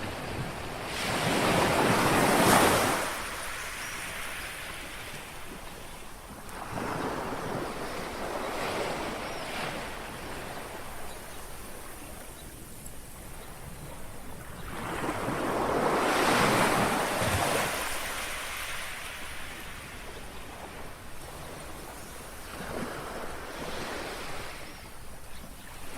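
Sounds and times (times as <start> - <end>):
sea waves lapping on shore: 0.0 - 25.9.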